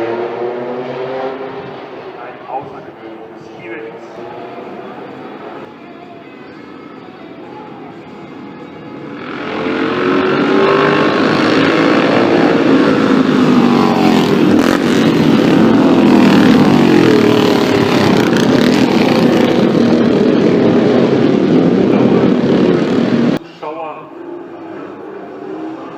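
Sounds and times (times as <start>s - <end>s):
racing car engine accelerating: 0.0s - 5.7s, 9.1s - 23.4s.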